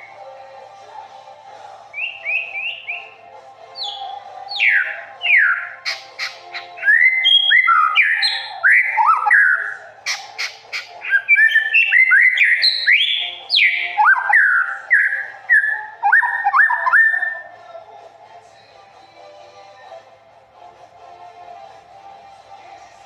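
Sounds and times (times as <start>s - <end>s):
songbird whistled phrases: 1.9s - 17.5s.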